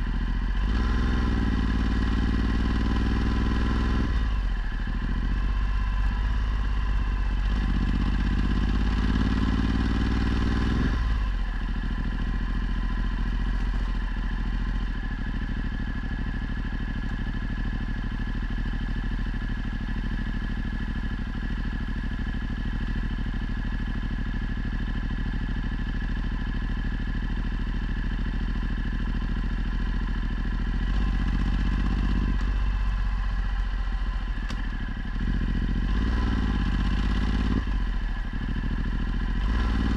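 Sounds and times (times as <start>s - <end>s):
motorcycle engine revving: 0.0s - 16.8s, 28.2s - 39.9s.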